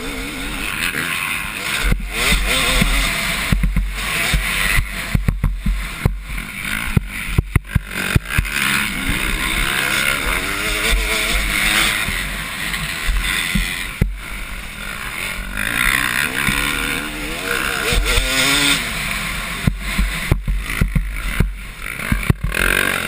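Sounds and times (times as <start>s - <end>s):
motocross bike engines revving: 0.0s - 23.0s
sharp knocks: 19.6s - 22.7s.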